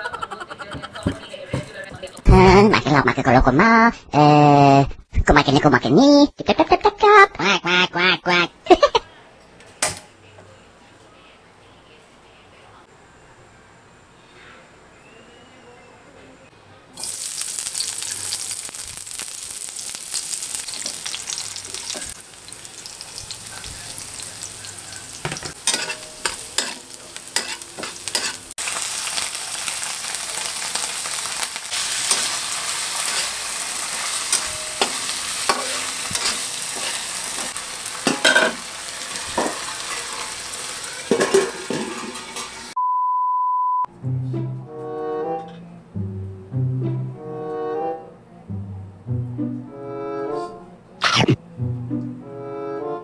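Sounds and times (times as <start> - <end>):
onions sizzling in oil: 17.0 - 42.8
metal spatula scraping a wok: 25.3 - 28.5, 31.8 - 38.5
test-tone beep: 42.8 - 43.9.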